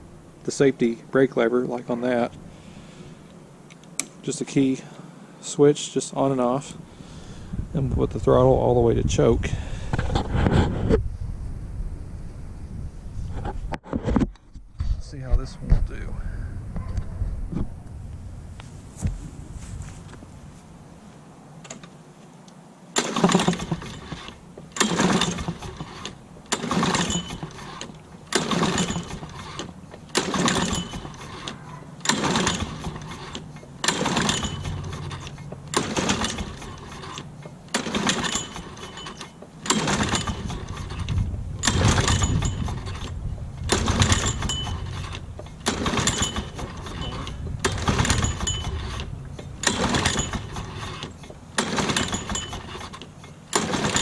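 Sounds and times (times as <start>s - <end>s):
engine cranking: 23.0s - 54.0s
recoil starter being pulled: 23.0s - 54.0s.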